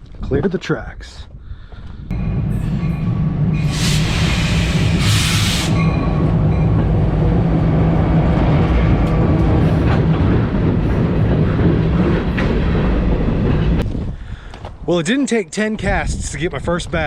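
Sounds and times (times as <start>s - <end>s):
train rumbling over rails: 2.0s - 14.2s
harsh hiss burst: 3.6s - 5.8s.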